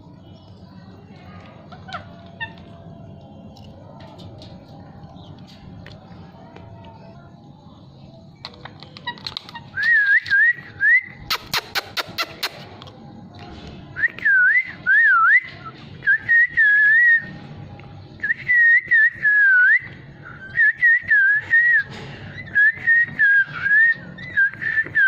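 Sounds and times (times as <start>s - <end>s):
sharp clicks: 11.3s - 13.0s.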